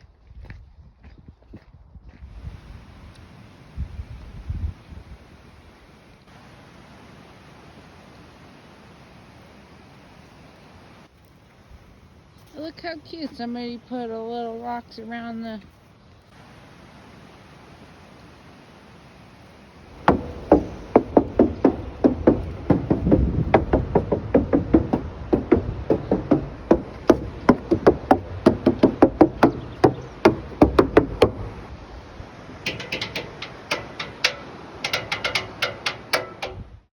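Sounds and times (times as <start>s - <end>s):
sharp knocks: 19.9s - 31.7s, 32.6s - 36.8s
low thumps: 19.9s - 31.8s, 32.6s - 36.8s.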